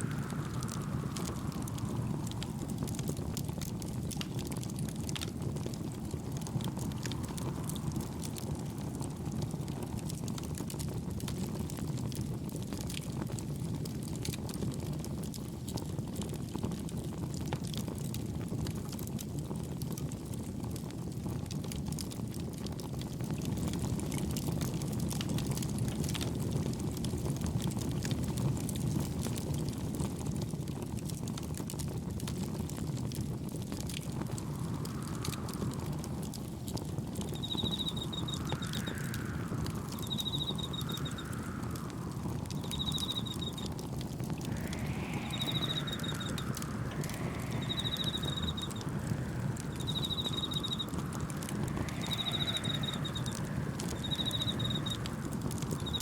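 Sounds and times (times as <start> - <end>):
gentle waves: 0.0 - 10.7, 33.2 - 56.0
wind rumbling: 0.0 - 14.8, 31.8 - 56.0
campfire wood crackling: 0.0 - 56.0.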